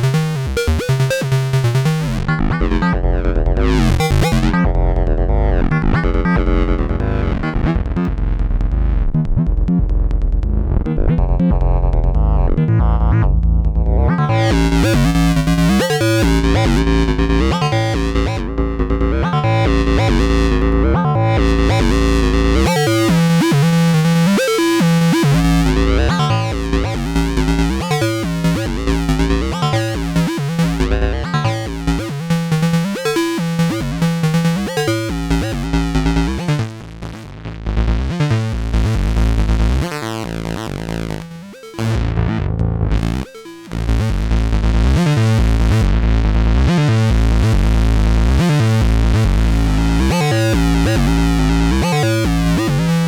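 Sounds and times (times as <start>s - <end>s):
heavy synth bass line: 0.0s - 53.0s
sequenced synthesizer notes: 0.0s - 53.0s.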